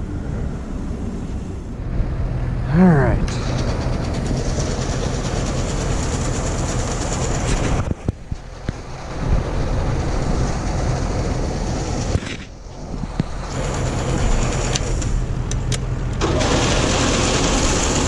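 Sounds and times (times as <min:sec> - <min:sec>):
starter motor cranking engine: 0:03.3 - 0:09.3, 0:13.1 - 0:18.0.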